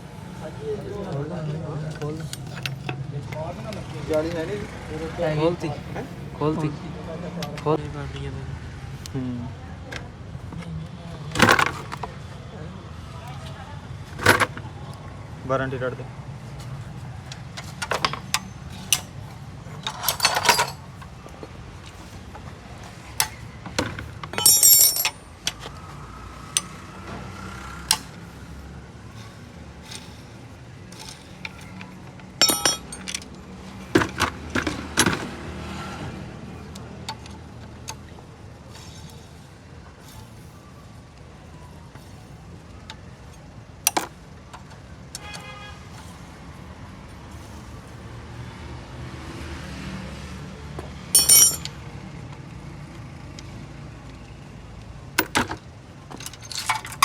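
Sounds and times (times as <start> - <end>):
metal tools clinking and clattering: 1.9 - 3.0, 11.3 - 12.1, 14.2 - 14.7, 17.2 - 22.4, 23.0 - 25.8, 29.1 - 35.3, 43.9 - 44.2, 51.1 - 51.8, 55.2 - 57.0.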